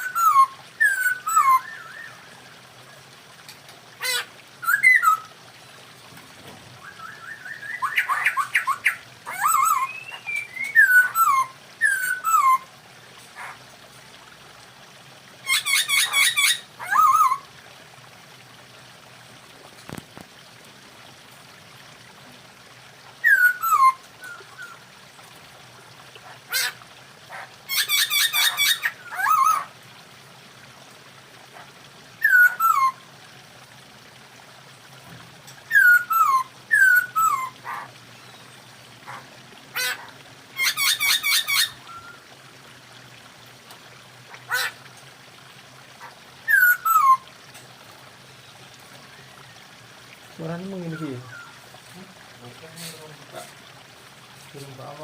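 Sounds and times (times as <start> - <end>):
bird whistling descending notes: 6.8 - 8.1.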